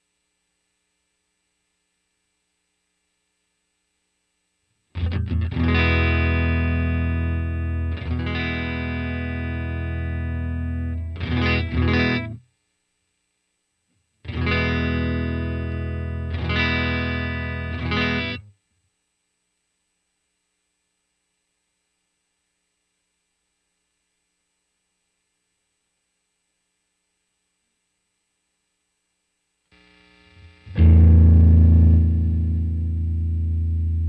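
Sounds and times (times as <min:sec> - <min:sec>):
electric guitar chords and strums: 0:05.0 - 0:12.4, 0:14.3 - 0:18.4, 0:30.4 - 0:34.0.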